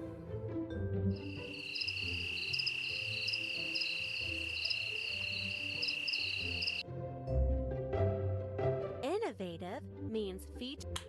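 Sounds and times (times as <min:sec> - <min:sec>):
soft background music: 0:00.0 - 0:11.0
insects chirping: 0:01.1 - 0:06.8.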